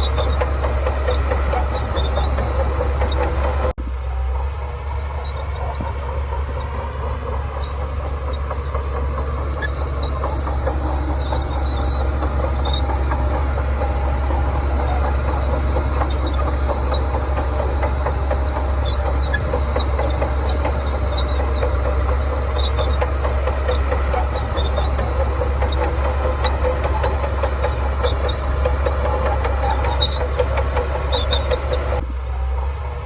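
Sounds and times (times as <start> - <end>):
bulldozer diesel engine running: 0.0 - 33.0
steel tracks clanking: 0.0 - 33.0.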